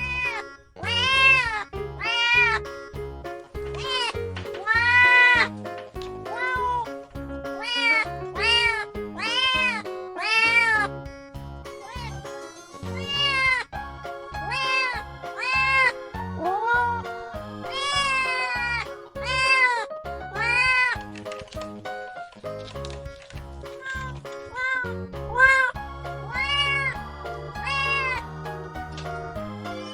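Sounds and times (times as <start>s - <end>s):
kittens meowing: 0.0s - 2.6s, 7.6s - 10.8s, 14.5s - 17.0s, 17.7s - 19.8s, 26.3s - 27.0s
music with a steady beat: 1.8s - 24.4s, 25.2s - 29.9s.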